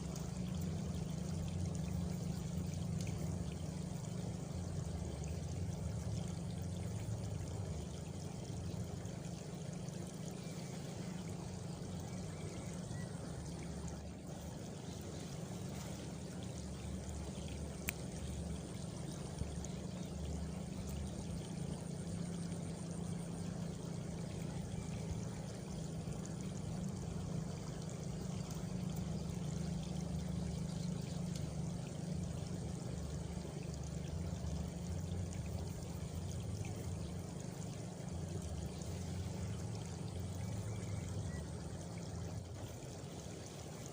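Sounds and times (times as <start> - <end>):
running water: 0.0 - 43.9.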